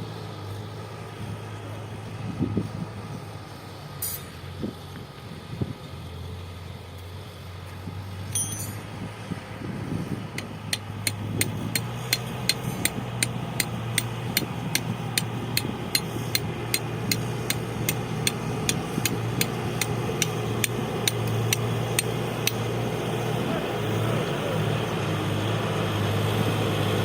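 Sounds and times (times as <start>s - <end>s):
diesel engine running: 0.0s - 27.0s
sharp clicks: 10.4s - 22.6s.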